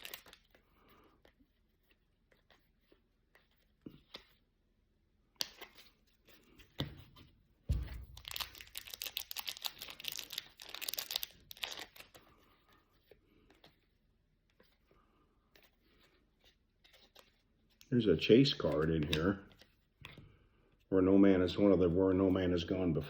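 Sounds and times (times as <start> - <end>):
wrapper crackling and tearing: 0.0 - 0.4, 8.1 - 12.2.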